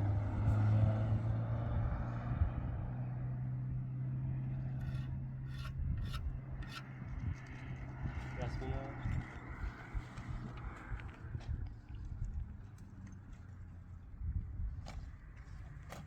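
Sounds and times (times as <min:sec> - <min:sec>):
low engine hum: 0:00.0 - 0:16.0
rasping scraping strokes: 0:04.6 - 0:06.9.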